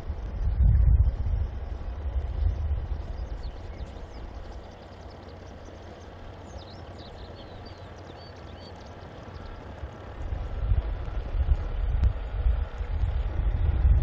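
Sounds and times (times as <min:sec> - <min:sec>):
low wind rumble on microphone: 0:00.0 - 0:14.0
quick bird chirps: 0:03.4 - 0:09.8.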